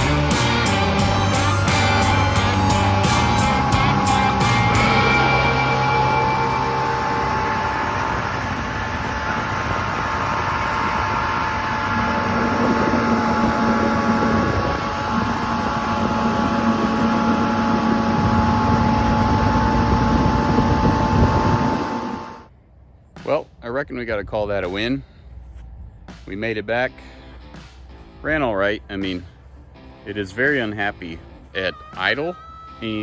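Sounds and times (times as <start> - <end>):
outboard motor running: 0.0 - 22.5
second engine tone: 0.0 - 22.5
wind on microphone: 0.0 - 22.5.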